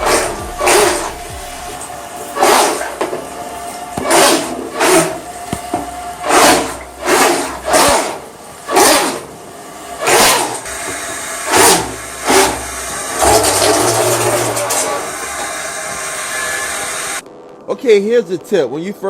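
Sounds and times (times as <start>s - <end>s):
water churning in bathtub: 0.0s - 16.1s
toy boat motor whirring: 3.9s - 9.3s, 10.0s - 17.2s.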